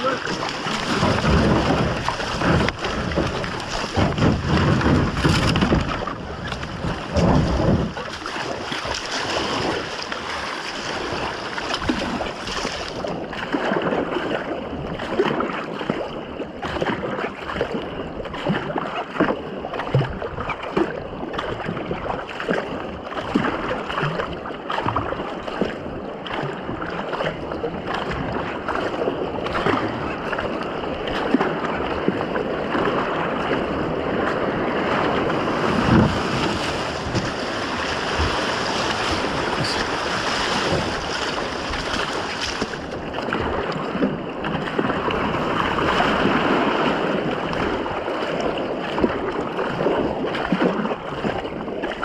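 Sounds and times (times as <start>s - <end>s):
water rushing: 0.0s - 14.0s, 29.6s - 52.0s
wind buffeting microphone: 0.0s - 15.4s, 27.4s - 51.7s
paddles splashing: 0.0s - 16.1s, 16.7s - 52.0s.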